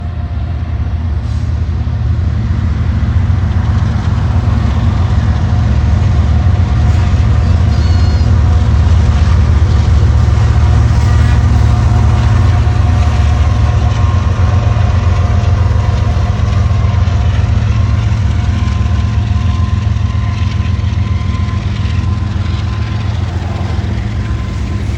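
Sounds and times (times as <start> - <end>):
diesel locomotive rumbling: 0.0 - 24.9.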